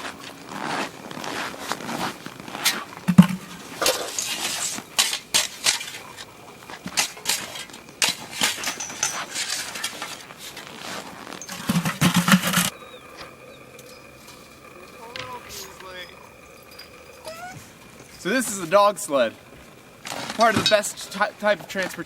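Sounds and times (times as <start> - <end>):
crunching and scraping in snow: 0.0 - 12.7.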